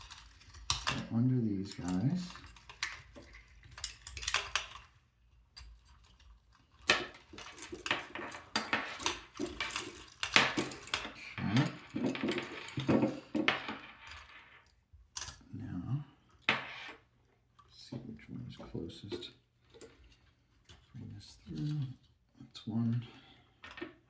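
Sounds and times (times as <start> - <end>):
plastic parts and wire handled: 0.0 - 15.5.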